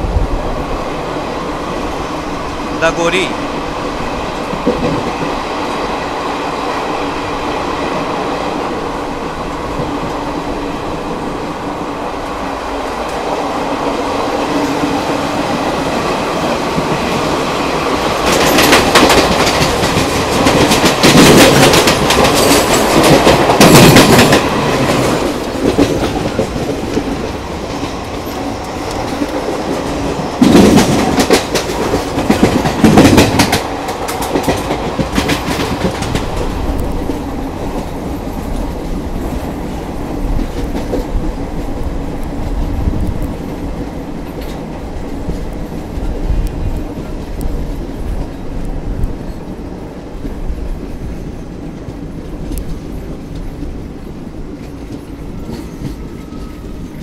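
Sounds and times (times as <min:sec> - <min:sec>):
train rumble: 0:00.0 - 0:57.0
wheels clattering over rails: 0:15.6 - 0:39.5.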